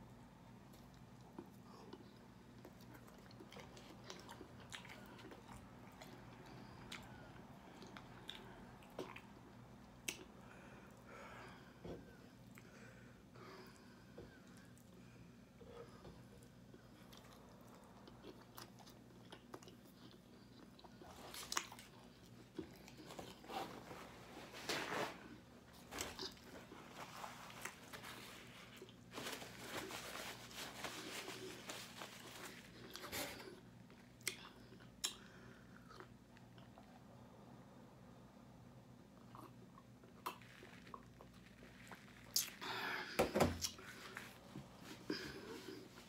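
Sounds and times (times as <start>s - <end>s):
chewing and biting: 0.8s - 10.3s, 16.8s - 23.5s.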